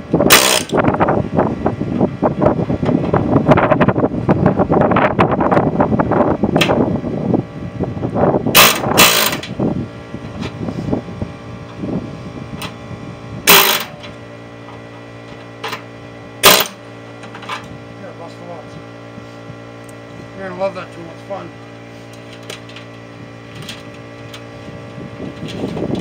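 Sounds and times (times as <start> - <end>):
power tool hammering metal: 0.3 - 0.8, 8.5 - 9.6, 13.4 - 14.2, 16.4 - 17.5.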